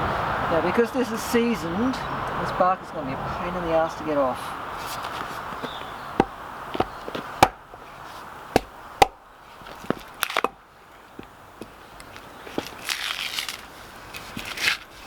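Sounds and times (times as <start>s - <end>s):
hand tool striking log bark: 6.2s - 7.8s, 8.5s - 9.2s, 9.9s - 10.6s.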